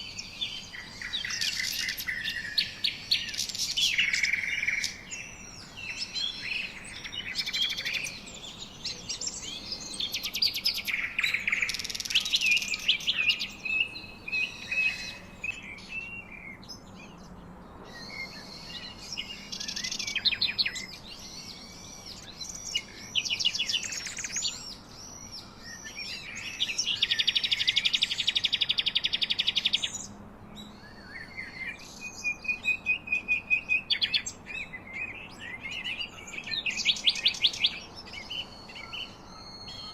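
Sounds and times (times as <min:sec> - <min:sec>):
birds chirping and singing: 0:00.0 - 0:39.9
whistled bird notes: 0:17.9 - 0:39.9.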